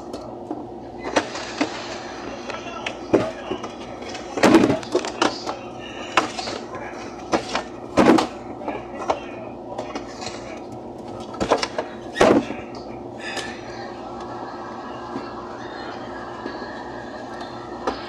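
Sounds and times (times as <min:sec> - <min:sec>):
refrigerator hum: 0:00.0 - 0:18.0
items knocking in a refrigerator: 0:03.1 - 0:06.5, 0:07.3 - 0:09.2, 0:11.3 - 0:12.6.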